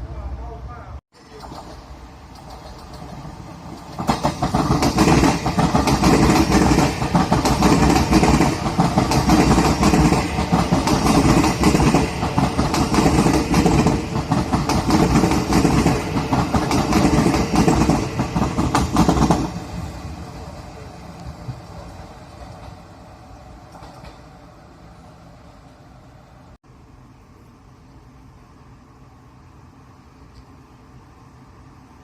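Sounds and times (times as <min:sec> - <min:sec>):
train passing at speed: 0:00.0 - 0:27.2
wheels clattering on track: 0:01.2 - 0:24.7.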